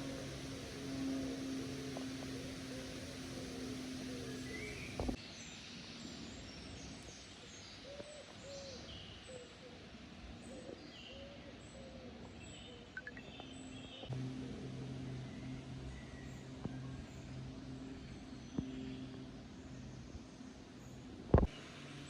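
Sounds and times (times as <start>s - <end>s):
birds calling: 0.0s - 5.2s
steady hum: 0.0s - 5.2s, 14.1s - 22.0s
outdoor background noise: 0.0s - 22.0s.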